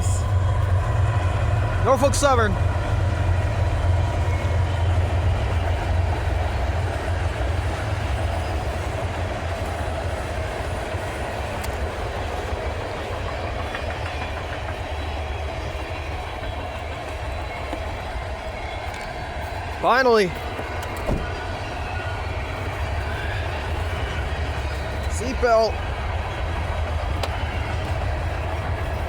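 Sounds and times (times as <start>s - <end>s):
freight train passing: 0.0s - 29.0s.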